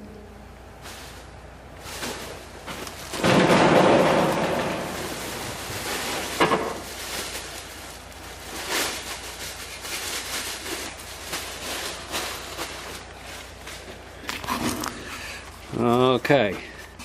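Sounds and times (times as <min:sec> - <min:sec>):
low background noise: 0:00.0 - 0:17.0
handling knocks and clatter: 0:01.8 - 0:15.0.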